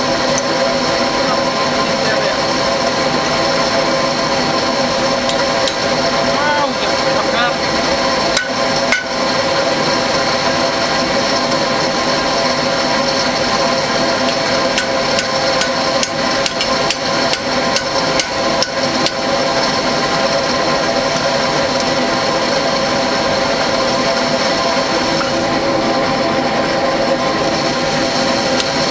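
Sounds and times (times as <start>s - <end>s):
forge blower whining: 0.0s - 28.9s
hammer strikes on metal: 8.4s - 9.2s, 14.8s - 19.2s.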